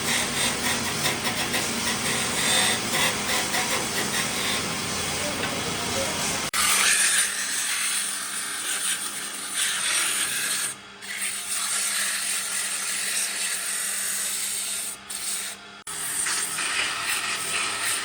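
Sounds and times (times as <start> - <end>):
wood being sanded: 0.0 - 5.4, 6.1 - 18.0.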